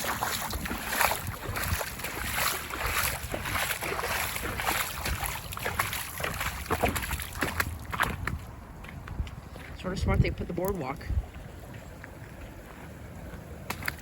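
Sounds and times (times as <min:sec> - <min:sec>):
floodwater running and splashing: 0:00.0 - 0:08.4.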